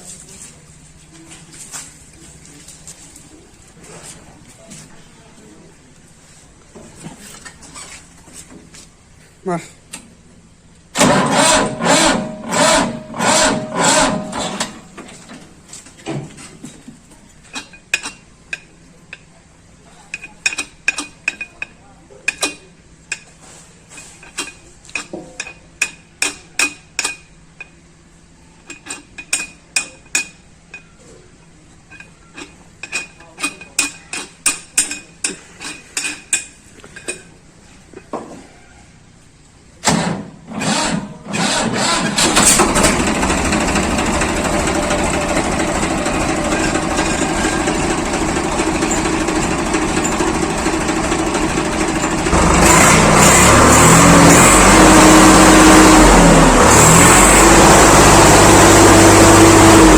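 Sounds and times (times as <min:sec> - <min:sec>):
tractor diesel engine starting: 0:10.9 - 0:15.6, 0:39.8 - 0:59.9.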